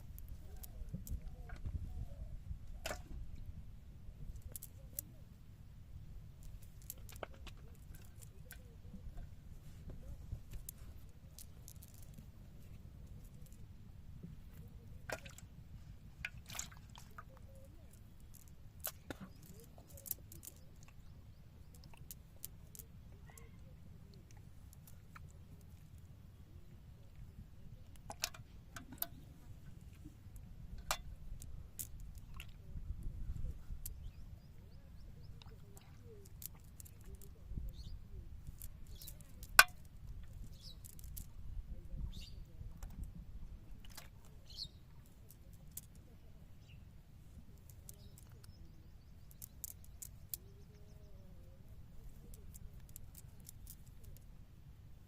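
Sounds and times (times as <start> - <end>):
steady low rumble: 0.0 - 55.0
water splashing and dripping: 16.2 - 21.0
faint bird chirps: 33.3 - 39.4, 40.4 - 41.1, 44.3 - 46.9, 47.6 - 53.8.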